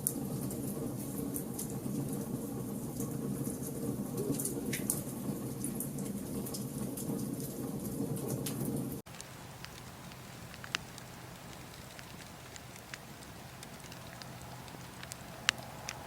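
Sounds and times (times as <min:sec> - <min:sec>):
low rumble of burning: 0:00.0 - 0:16.0
wood fire crackling and popping: 0:09.1 - 0:16.0.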